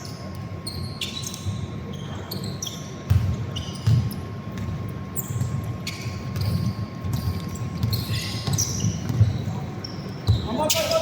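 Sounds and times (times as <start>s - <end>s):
sneakers squeaking on floor: 0.0s - 11.0s
basketball dribbling thumps: 3.0s - 9.6s.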